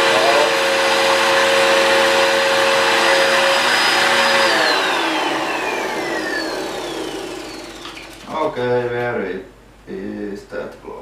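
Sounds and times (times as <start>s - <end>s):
vacuum cleaner motor whine: 0.0s - 8.4s.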